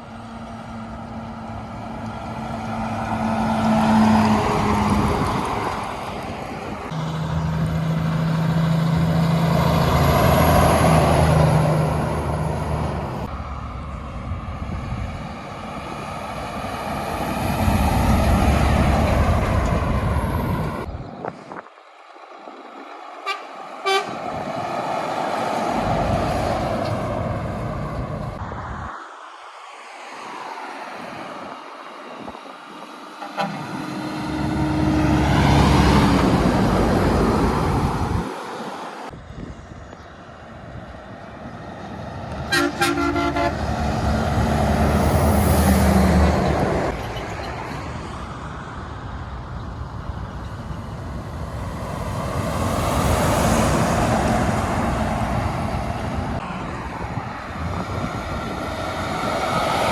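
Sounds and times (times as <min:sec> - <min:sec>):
heavy trucks driving past: 0:00.0 - 0:59.9
truck horn toot: 0:23.2 - 0:24.3, 0:33.2 - 0:36.2, 0:42.4 - 0:44.0.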